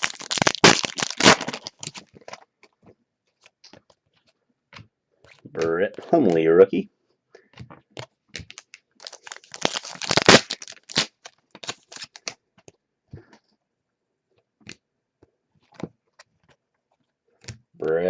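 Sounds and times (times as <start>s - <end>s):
card pack wrapper crinkling: 0.0s - 2.5s, 8.0s - 12.4s.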